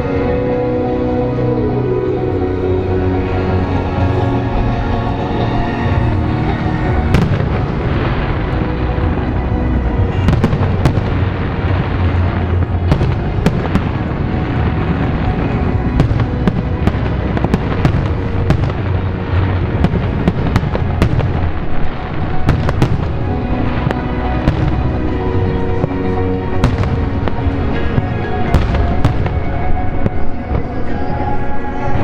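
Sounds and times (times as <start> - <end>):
music playing: 0.0 - 32.0
fireworks cracks and bangs: 6.9 - 30.9.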